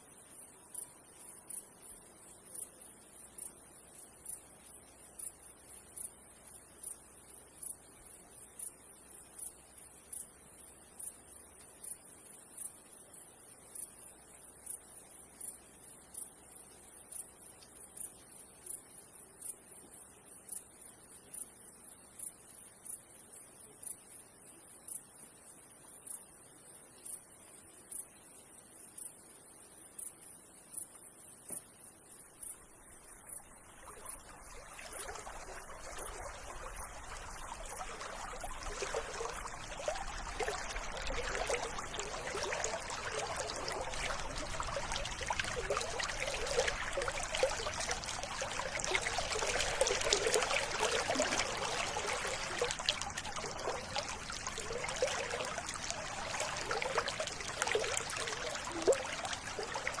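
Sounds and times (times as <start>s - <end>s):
river water babbling over stones: 32.6s - 60.0s.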